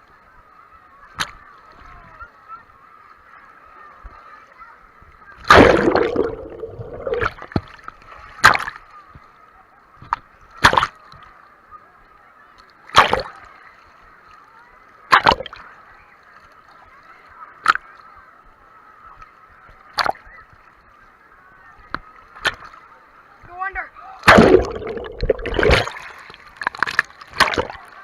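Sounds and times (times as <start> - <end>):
muffled water splashing: 5.3 - 9.3, 15.0 - 15.7, 24.2 - 28.0.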